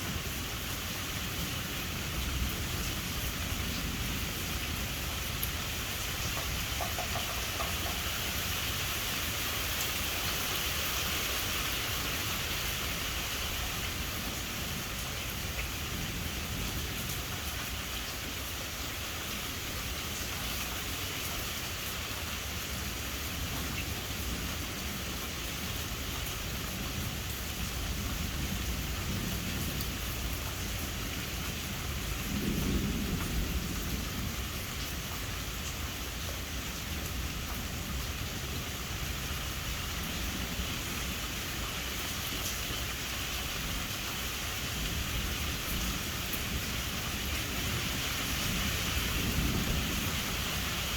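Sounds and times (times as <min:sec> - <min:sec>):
steady rain falling: 0:00.0 - 0:50.9
distant thunder rumble: 0:44.7 - 0:50.9.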